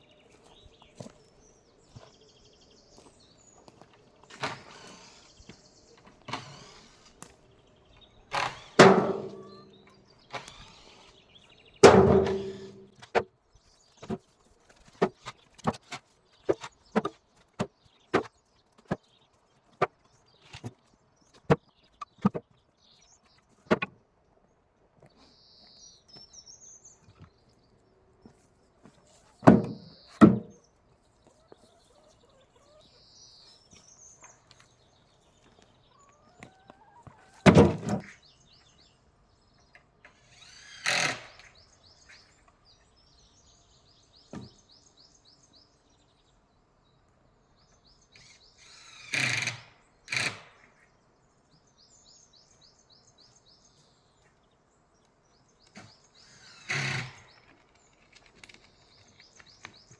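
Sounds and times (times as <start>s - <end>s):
birds chirping faintly: 0.0s - 59.9s
wood thrown onto pile: 8.8s - 9.7s, 11.8s - 13.3s, 28.9s - 30.6s, 37.4s - 38.1s.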